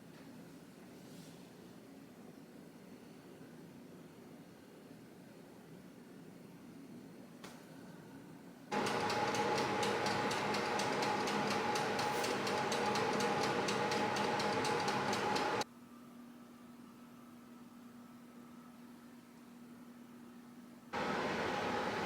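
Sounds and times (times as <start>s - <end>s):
small appliance motor humming: 8.7s - 15.6s.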